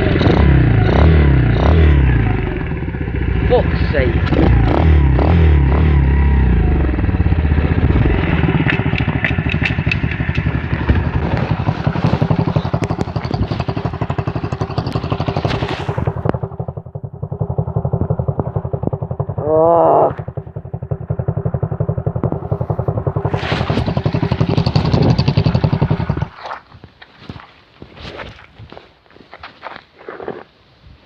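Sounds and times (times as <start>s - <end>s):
pit bike engine running: 0.0s - 26.4s
mechanical ticks and clatter: 8.5s - 11.6s, 12.2s - 19.2s.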